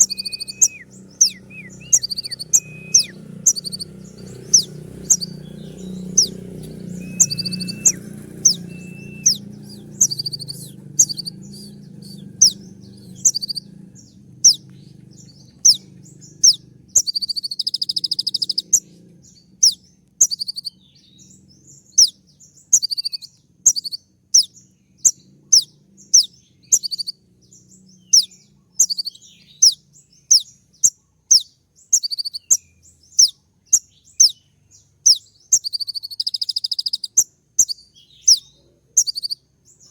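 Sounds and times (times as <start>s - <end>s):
bird rattling trill: 0.0s - 18.9s
faint low hum: 0.0s - 22.0s
bird singing sharp high notes: 0.0s - 34.4s.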